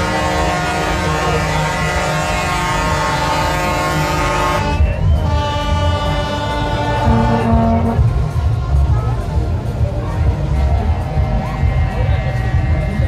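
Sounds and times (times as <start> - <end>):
truck air horns blowing chords: 0.0 - 8.8, 10.4 - 13.0
low rumble: 4.8 - 13.0.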